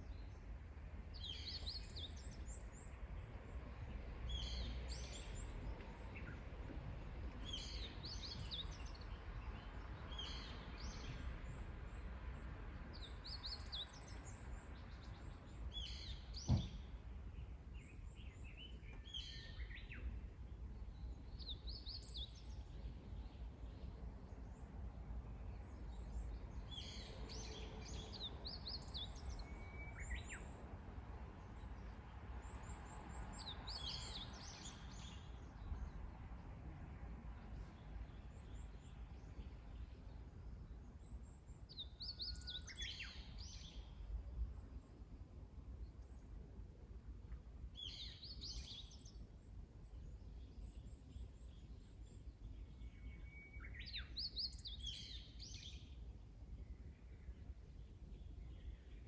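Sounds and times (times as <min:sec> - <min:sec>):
songbirds chirping: 0:00.0 - 0:59.0
sharp knock: 0:16.5 - 0:16.8.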